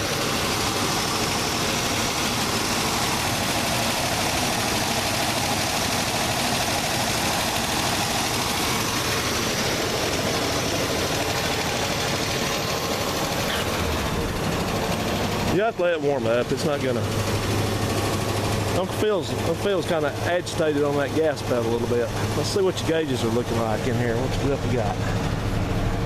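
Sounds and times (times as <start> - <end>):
cold car engine running: 0.0 - 26.0.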